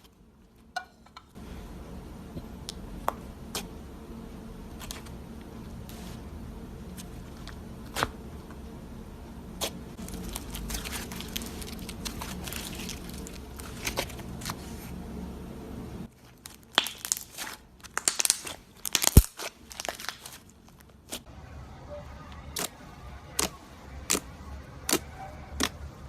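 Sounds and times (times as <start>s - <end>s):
low steady hum: 0.0s - 26.0s
slime crackling and popping: 10.0s - 14.2s, 16.2s - 21.3s.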